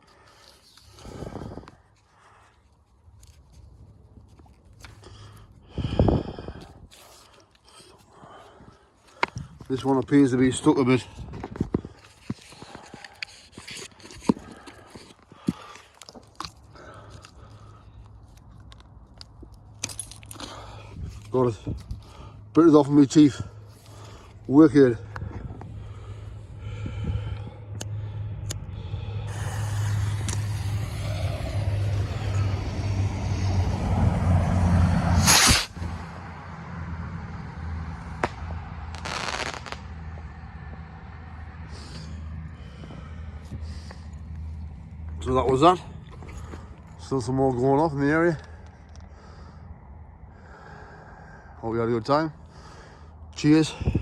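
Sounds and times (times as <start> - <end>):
steady low rumble: 16.6 - 54.0
firework sharp crack: 29.3 - 32.5, 35.2 - 35.9, 38.1 - 40.1
fireworks bursts: 29.3 - 32.6, 35.2 - 35.9, 38.2 - 40.0.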